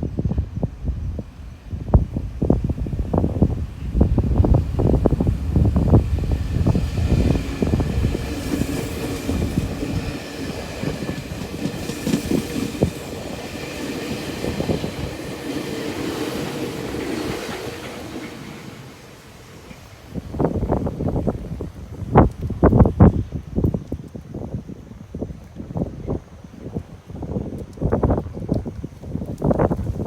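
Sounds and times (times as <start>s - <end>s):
train mechanical hum: 0.0s - 30.0s
train wheels clacking: 3.8s - 20.0s.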